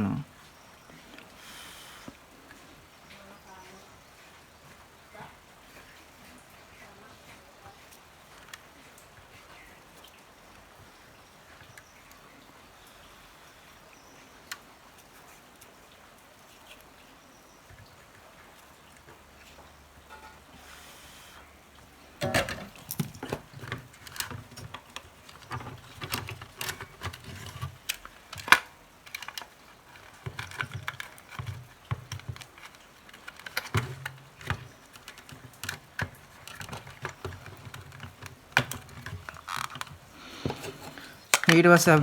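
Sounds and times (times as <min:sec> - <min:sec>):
clicks and knocks of handled parts: 0:22.2 - 0:42.0.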